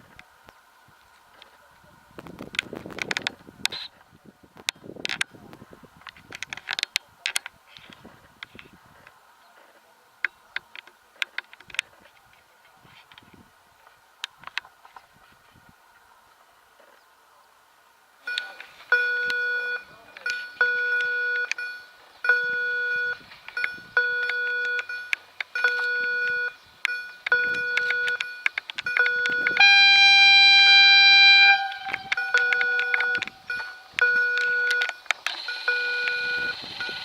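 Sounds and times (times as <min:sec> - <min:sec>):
level crossing warning beeps: 0:18.2 - 0:37.0
long horn blast: 0:28.9 - 0:34.9.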